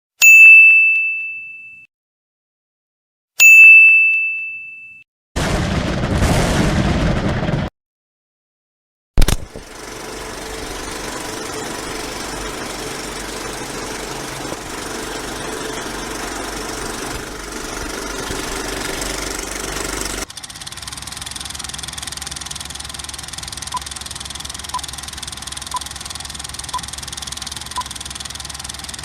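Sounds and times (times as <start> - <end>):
motorcycle engine running: 9.2 - 29.0.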